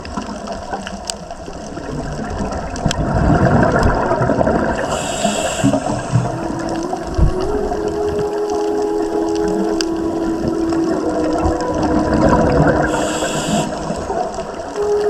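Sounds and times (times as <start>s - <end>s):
water rushing and bubbling: 0.0s - 15.0s
brief hiss: 4.8s - 6.3s, 12.9s - 14.3s.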